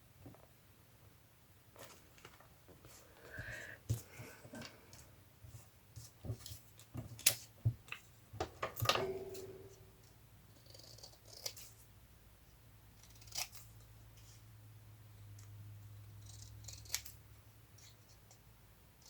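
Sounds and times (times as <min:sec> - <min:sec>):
low steady hum: 0:08.4 - 0:10.6.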